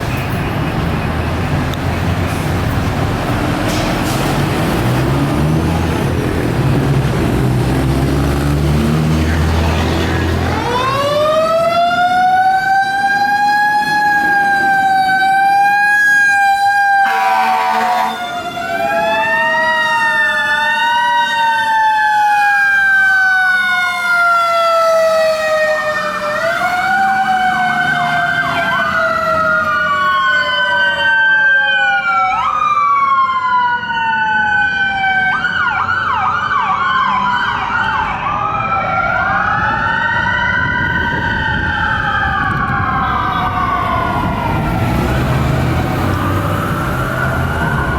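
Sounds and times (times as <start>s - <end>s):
heavy truck engine rumbling: 0.0s - 12.2s, 34.0s - 47.9s
fire truck siren wailing: 0.0s - 47.9s
air horn blast: 17.0s - 18.2s
second siren yelping: 46.0s - 47.9s.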